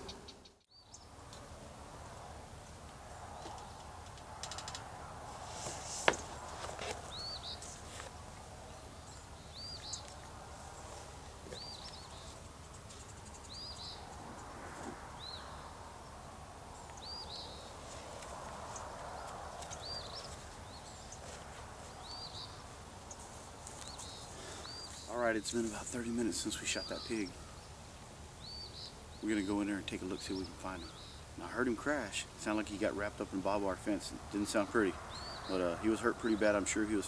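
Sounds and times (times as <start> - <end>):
songbird chirping: 0.0 - 37.0
light clicks and rustling: 3.4 - 4.9.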